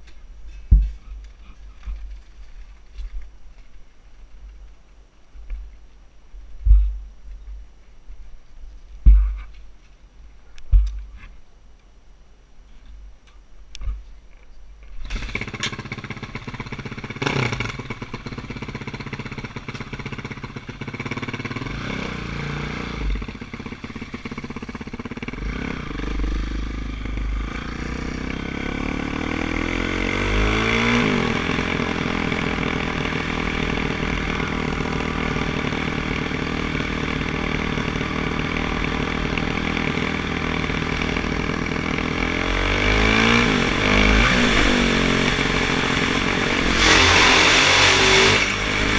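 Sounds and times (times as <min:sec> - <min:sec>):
dirt bike engine revving: 0:15.0 - 0:48.9.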